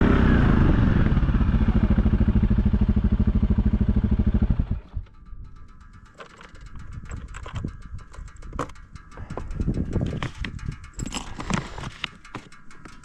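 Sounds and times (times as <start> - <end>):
chainsaw revving and idling: 0.0 - 4.8.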